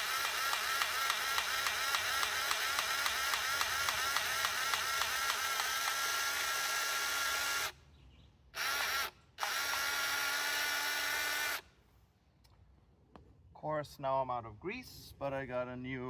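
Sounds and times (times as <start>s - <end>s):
grease gun motor pumping: 0.0s - 7.8s, 8.6s - 11.7s.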